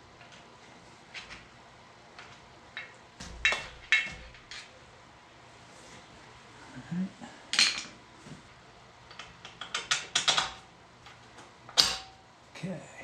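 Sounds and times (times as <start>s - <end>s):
steel parts clinking and clanking: 2.2s - 4.8s, 7.5s - 8.0s, 9.1s - 12.2s.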